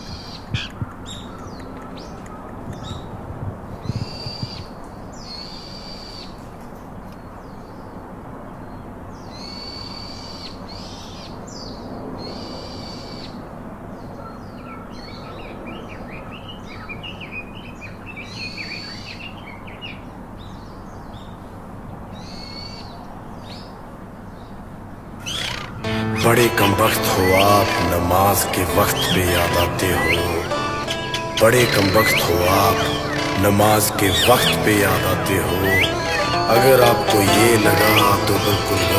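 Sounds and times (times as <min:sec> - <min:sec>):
parakeets calling: 0:25.2 - 0:38.9.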